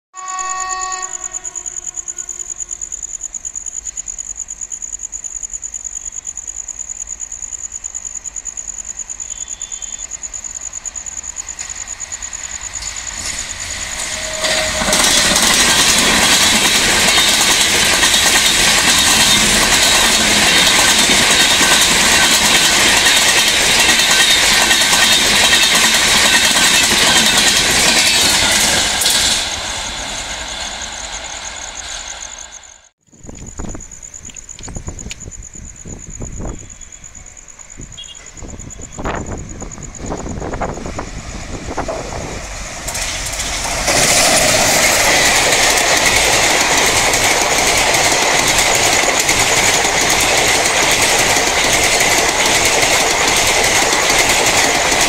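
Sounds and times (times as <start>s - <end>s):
train horn: 0.1s - 2.7s, 9.3s - 10.0s, 13.9s - 16.1s, 38.0s - 39.1s
passing train rush and clatter: 0.2s - 5.7s, 6.3s - 55.0s
train wheels clicking over rail joints: 8.4s - 35.4s, 37.4s - 55.0s.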